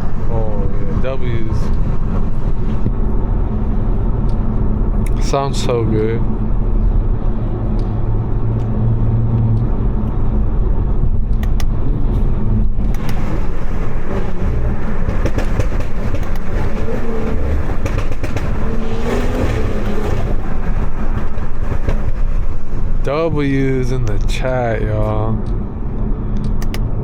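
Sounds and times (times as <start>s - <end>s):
tyre and road noise: 0.0s - 27.0s
car engine accelerating: 1.6s - 23.0s.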